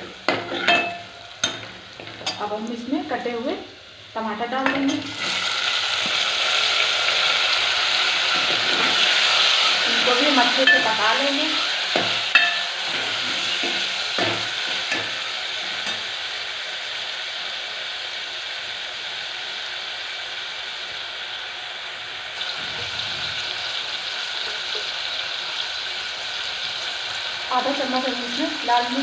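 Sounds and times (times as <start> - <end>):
tomatoes sizzling in oil: 0.0 - 29.0
metal ladle scraping a pot: 8.2 - 9.8, 11.6 - 14.0.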